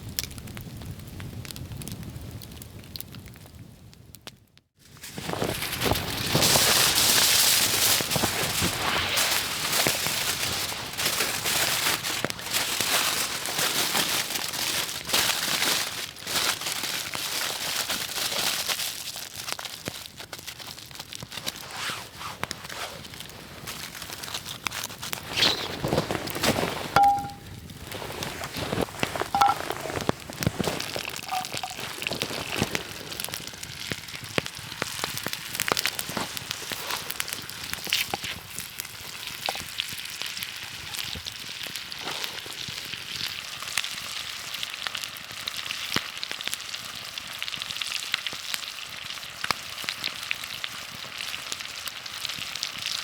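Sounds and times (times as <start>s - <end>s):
campfire crackling and popping: 0.0s - 53.0s
ringing clinks: 27.0s - 27.4s.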